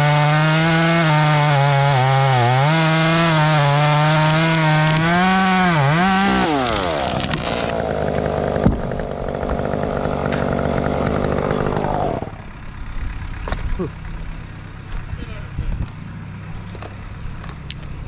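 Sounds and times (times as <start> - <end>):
chainsaw at full throttle: 0.0 - 13.9.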